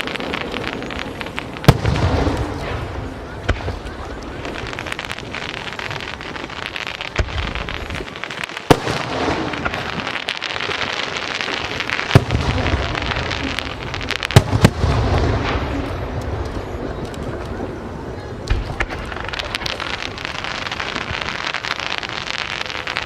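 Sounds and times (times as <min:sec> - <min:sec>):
loud firework bangs: 0:00.0 - 0:17.0
fireworks crackling: 0:00.0 - 0:23.0.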